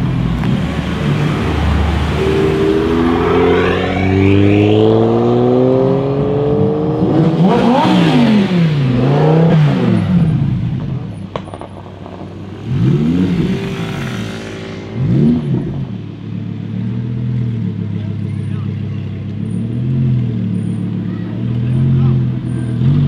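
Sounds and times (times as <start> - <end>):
sports car engine revving: 0.0 - 18.4.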